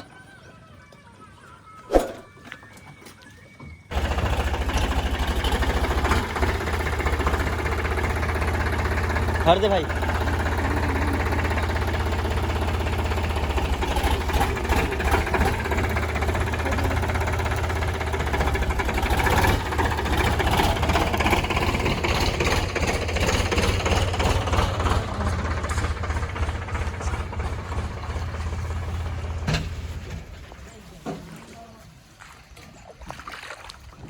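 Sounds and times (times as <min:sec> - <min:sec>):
diesel engine rumbling and clattering: 0:03.9 - 0:30.9.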